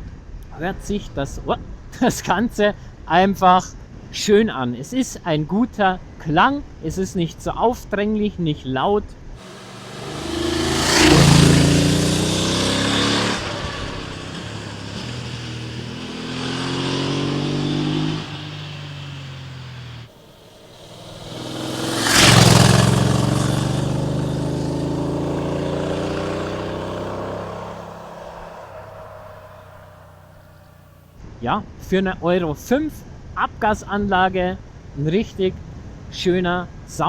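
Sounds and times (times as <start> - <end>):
rushing noise: 9.4 - 17.2, 20.1 - 24.6
motorcycle engine accelerating: 9.4 - 31.1.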